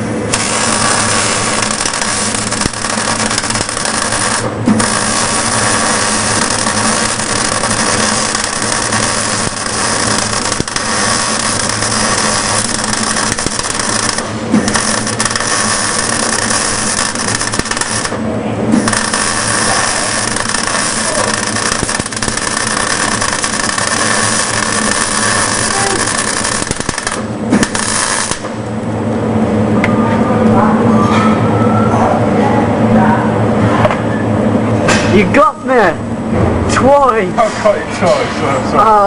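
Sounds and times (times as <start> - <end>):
arc welder crackling hiss: 0.0 - 28.7.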